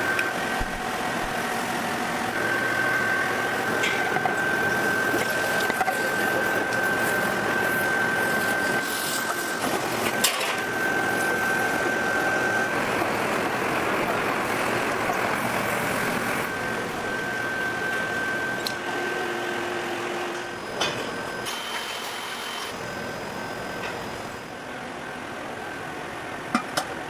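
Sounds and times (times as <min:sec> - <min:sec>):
machinery noise with high whine: 0:00.0 - 0:27.0.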